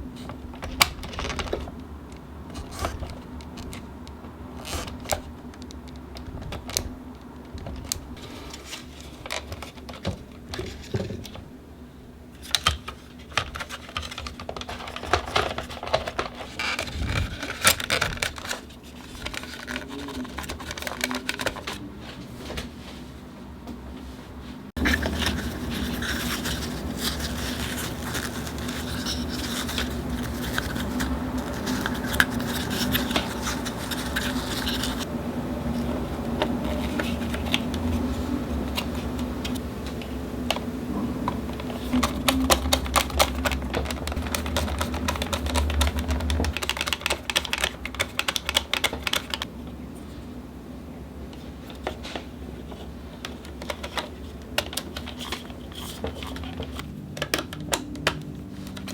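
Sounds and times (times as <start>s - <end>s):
hum and hiss: 1.7s - 46.6s
plastic parts clicking: 12.4s - 21.8s, 24.8s - 35.1s, 41.8s - 49.5s, 52.7s - 58.9s.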